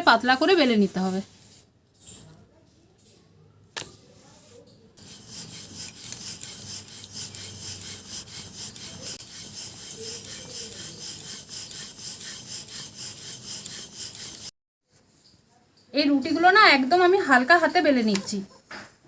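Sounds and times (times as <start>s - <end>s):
rolling pin rolling dough: 0.0s - 2.4s, 3.8s - 14.5s.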